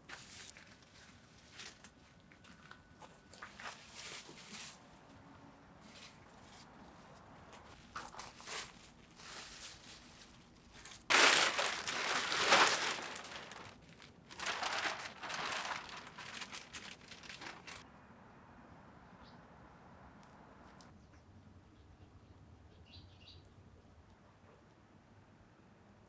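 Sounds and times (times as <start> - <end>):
crinkling crunching handling noise: 7.8 - 17.8.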